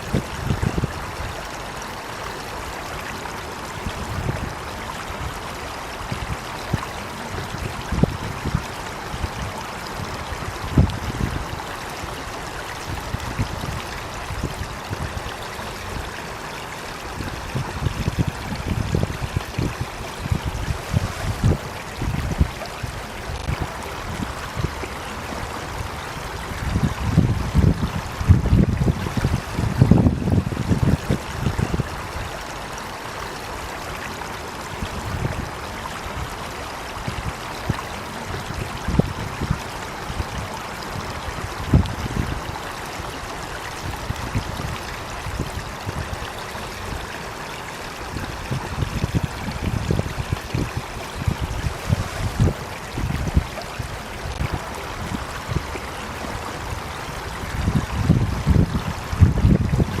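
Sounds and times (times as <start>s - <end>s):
water flowing: 0.0s - 60.0s
low rumbling gusts: 17.0s - 32.4s, 48.1s - 60.0s.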